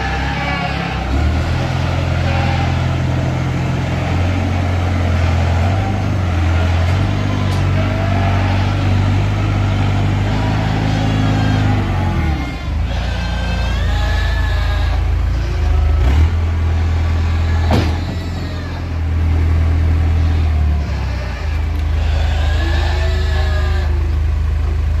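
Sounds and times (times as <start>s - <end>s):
farm machine engine under load: 0.0s - 25.0s.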